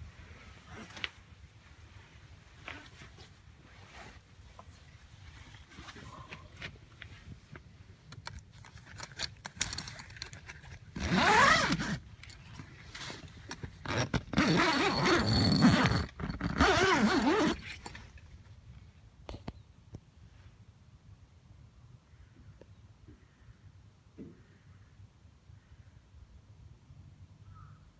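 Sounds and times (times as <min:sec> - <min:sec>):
loud rasping: 0:13.8 - 0:18.0.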